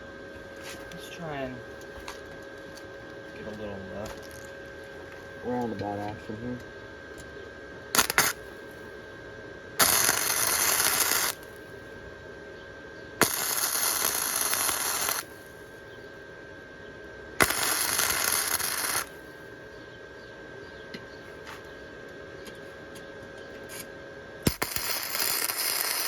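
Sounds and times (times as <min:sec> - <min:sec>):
welder arc crackling and hissing: 0:00.6 - 0:06.6, 0:07.9 - 0:09.0, 0:09.8 - 0:11.9, 0:13.2 - 0:15.8, 0:17.4 - 0:19.5, 0:23.7 - 0:26.0
sharp snap of welder arc: 0:07.9 - 0:08.5, 0:09.8 - 0:11.6, 0:13.2 - 0:15.4, 0:17.4 - 0:19.2, 0:23.7 - 0:26.0.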